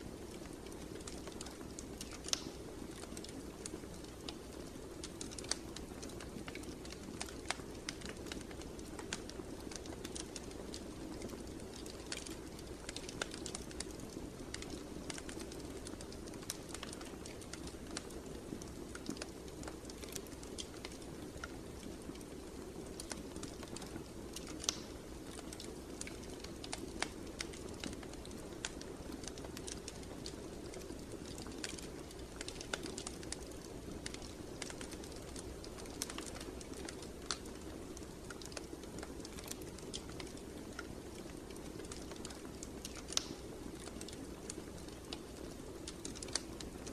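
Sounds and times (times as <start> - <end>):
fire crackling: 0.0 - 46.9.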